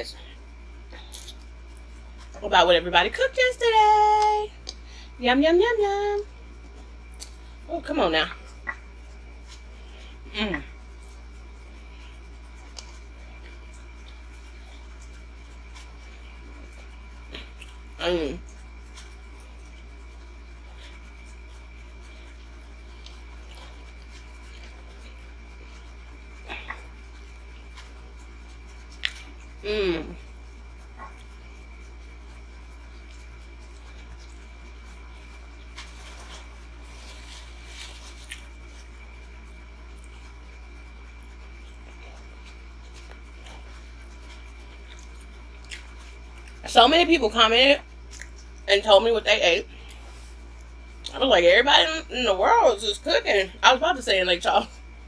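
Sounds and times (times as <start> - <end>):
low electrical hum: 0.0 - 55.0
squishy chewing sounds: 10.7 - 29.6, 30.2 - 46.7, 47.8 - 48.7
paper napkin crinkling: 35.2 - 39.0.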